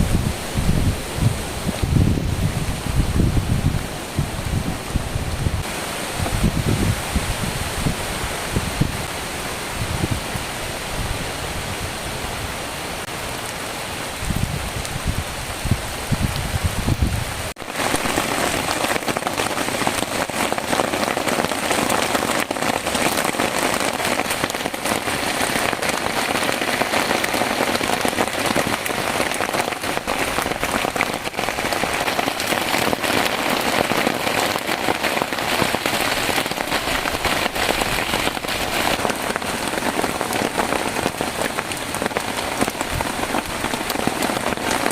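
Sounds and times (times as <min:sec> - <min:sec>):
wind buffeting microphone: 0:00.0 - 0:12.6, 0:14.0 - 0:44.9
heavy rain hissing: 0:00.0 - 0:44.9.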